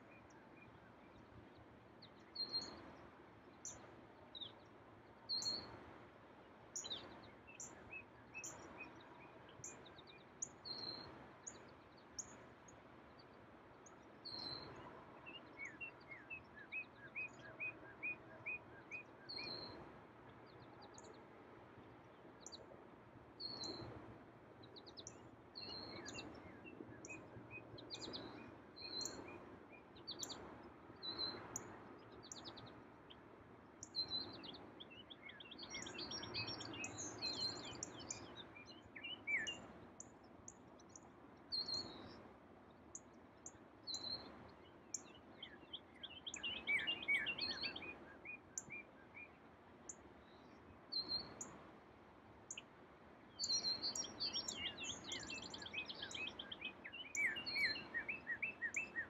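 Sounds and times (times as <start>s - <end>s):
songbirds chirping and singing: 33.9s - 39.7s, 43.9s - 49.4s, 53.4s - 59.0s.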